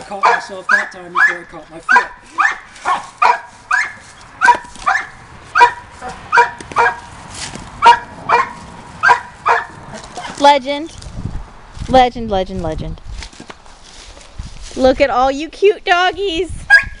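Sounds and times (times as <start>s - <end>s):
dog barking: 0.2s - 7.1s, 7.8s - 10.4s.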